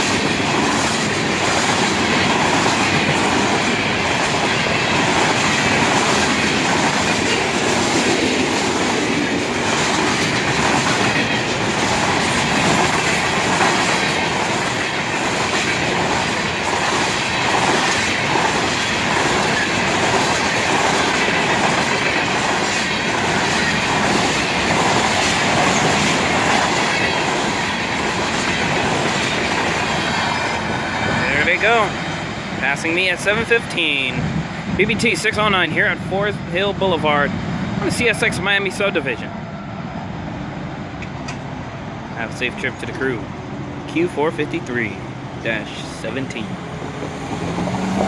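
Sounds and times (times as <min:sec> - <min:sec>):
wheels clacking over rail joints: 0:00.0 - 0:33.4
freight train rolling past: 0:00.0 - 0:48.0.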